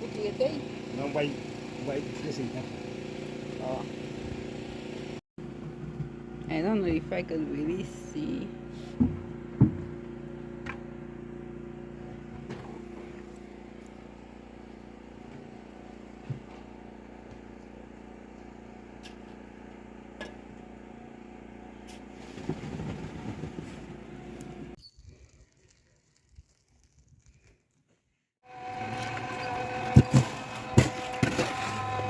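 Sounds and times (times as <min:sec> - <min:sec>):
engine running steadily: 0:00.0 - 0:24.8.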